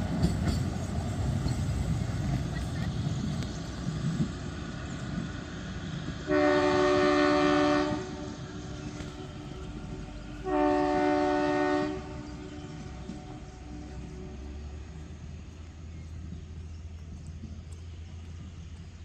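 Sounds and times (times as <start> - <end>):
train rumbling: 0.0 - 19.0
train horn blasts: 6.2 - 14.8.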